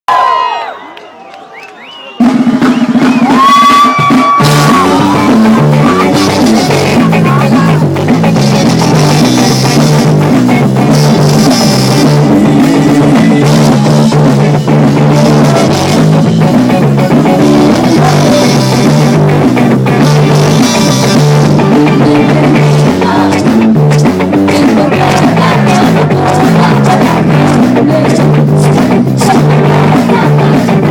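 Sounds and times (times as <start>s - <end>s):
loud rock music: 2.2s - 30.9s.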